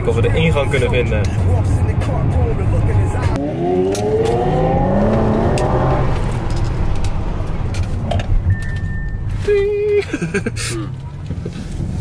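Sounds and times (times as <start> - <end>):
car engine revving: 1.2 - 8.8.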